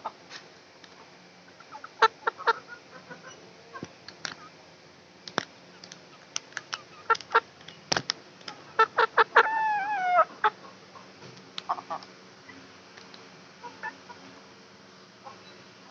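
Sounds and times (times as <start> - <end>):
chickens clucking: 0.9 - 4.5, 5.6 - 7.7, 8.5 - 12.7, 13.6 - 14.4, 15.2 - 15.6
drawn-out chicken call: 8.8 - 10.8.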